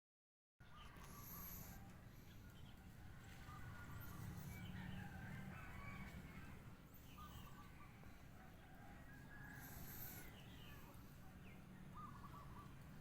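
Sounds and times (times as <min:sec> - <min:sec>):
rooster crowing faintly: 0:02.8 - 0:06.8, 0:08.3 - 0:10.3.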